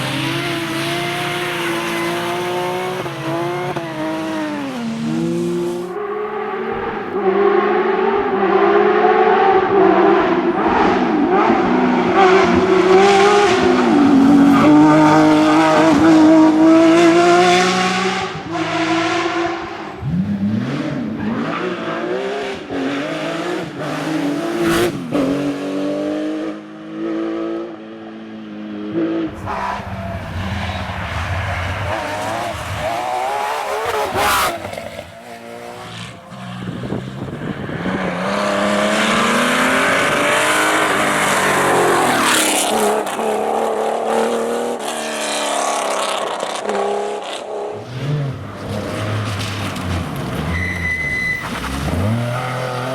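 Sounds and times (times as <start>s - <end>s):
rally car engines revving: 0.0s - 52.9s
tyre squeal: 48.5s - 52.9s.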